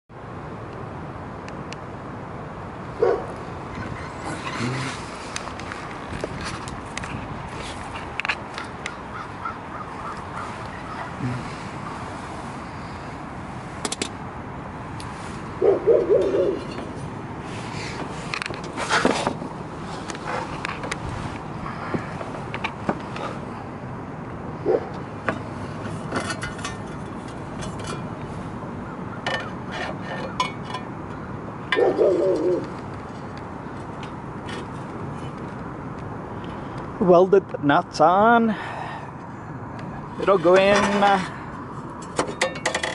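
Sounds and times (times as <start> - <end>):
steady background hum: 0.4 - 42.9
bird cooing call: 9.1 - 12.0, 15.6 - 16.8, 31.7 - 32.7
sharp clicks and knocks: 13.8 - 14.2
low wavering hooting call: 15.6 - 16.7, 31.7 - 32.7.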